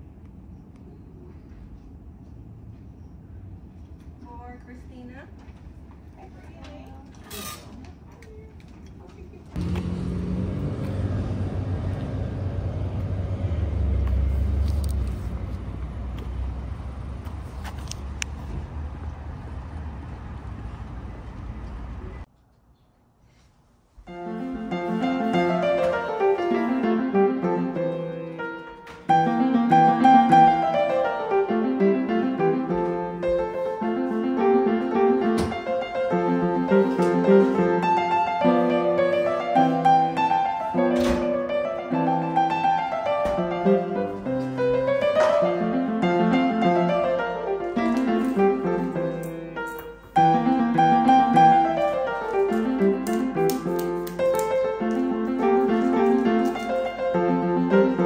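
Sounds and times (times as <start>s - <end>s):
gentle piano music: 24.1s - 58.0s.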